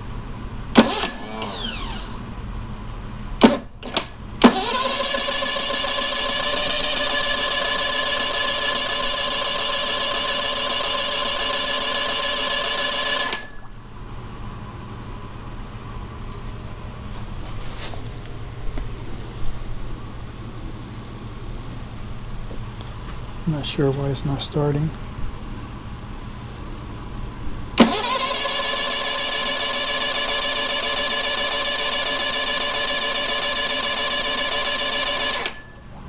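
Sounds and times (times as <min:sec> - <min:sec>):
electric starter cranking engine: 0:00.7 - 0:02.3, 0:03.4 - 0:13.7, 0:27.8 - 0:35.7.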